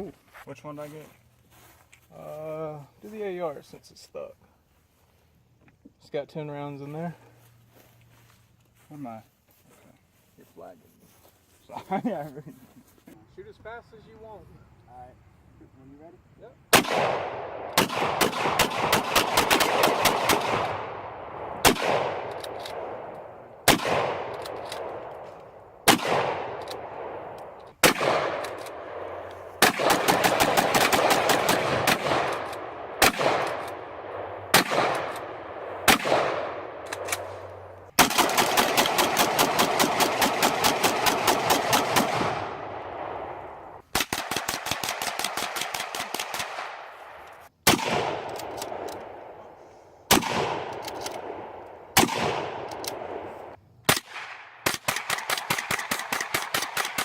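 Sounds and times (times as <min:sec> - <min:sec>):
rifle gunfire with echo: 0:16.7 - 0:25.0, 0:25.8 - 0:49.4, 0:50.1 - 0:57.0.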